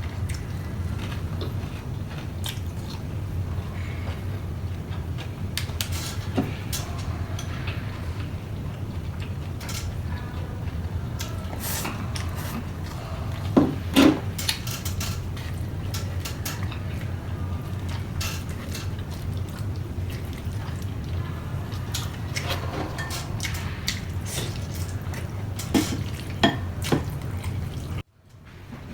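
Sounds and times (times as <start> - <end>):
steady low hum: 0.0 - 28.9
person chewing: 0.2 - 3.1, 10.7 - 28.0.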